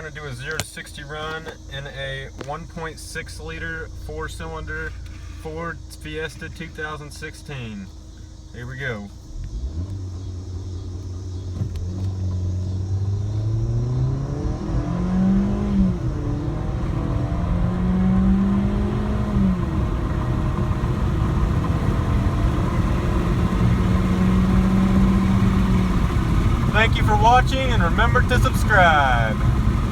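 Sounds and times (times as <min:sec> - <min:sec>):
road noise: 0:00.0 - 0:29.9
car engine accelerating: 0:09.1 - 0:29.9.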